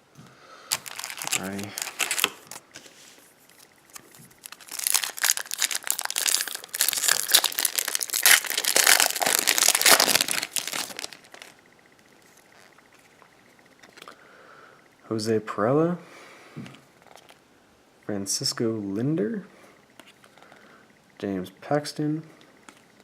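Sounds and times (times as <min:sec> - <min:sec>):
card pack wrapper tearing and crinkling: 0:00.7 - 0:02.6, 0:03.5 - 0:11.5.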